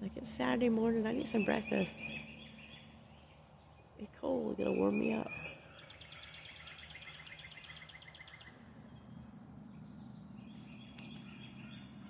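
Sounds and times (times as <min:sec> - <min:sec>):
faint low hum: 0:00.0 - 0:12.0
bird trill: 0:01.0 - 0:12.0
high bird chirps: 0:04.6 - 0:12.0.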